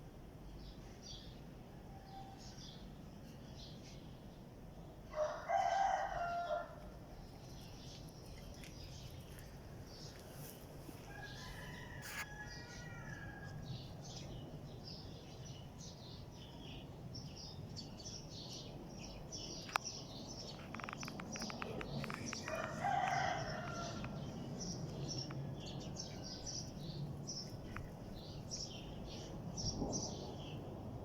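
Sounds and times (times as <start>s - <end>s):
small birds chirping: 7.1s - 30.7s
sharp clicks: 20.5s - 22.8s.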